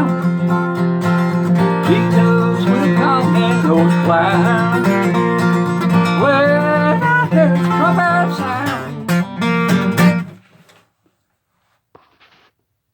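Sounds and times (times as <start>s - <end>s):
man singing: 0.0s - 0.4s, 1.6s - 9.0s
strummed acoustic guitar: 0.0s - 10.5s.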